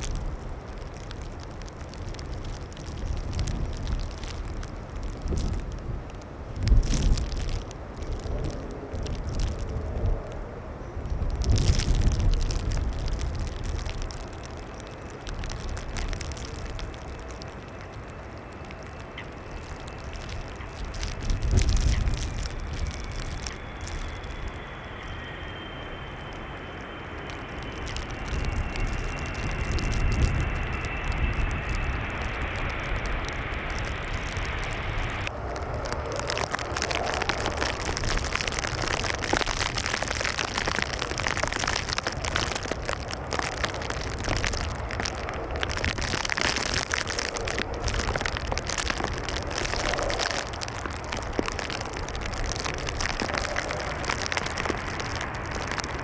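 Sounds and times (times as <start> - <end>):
low rumble: 0.0 - 56.0
scattered crackles: 0.0 - 56.0
steady rushing noise: 0.0 - 56.0
jet engines whining: 23.4 - 36.3.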